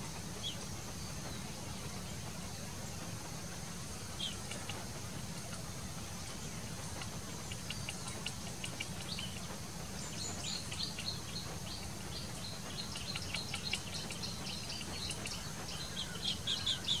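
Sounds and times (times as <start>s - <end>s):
steady low rumble: 0.0s - 17.0s
birds chirping: 0.1s - 17.0s.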